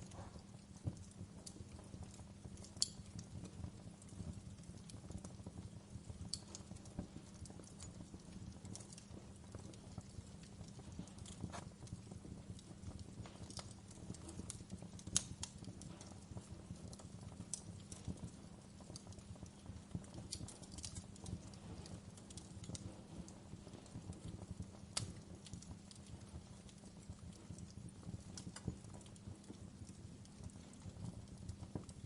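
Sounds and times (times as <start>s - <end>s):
low rumble of flames: 0.0s - 32.0s
wood fire crackling and popping: 0.0s - 32.0s.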